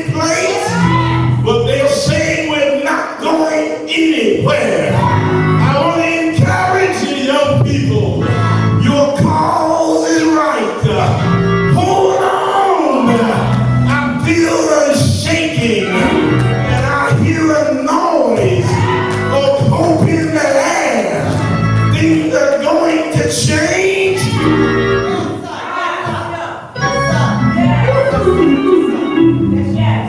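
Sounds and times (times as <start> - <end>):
gospel music: 0.0 - 30.0
man singing: 5.6 - 21.2, 21.9 - 24.6.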